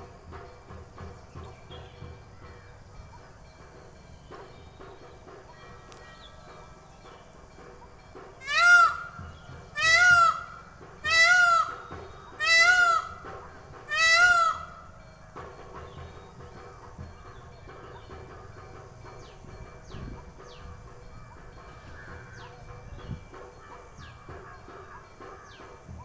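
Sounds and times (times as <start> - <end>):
peacock calling: 5.5 - 15.4.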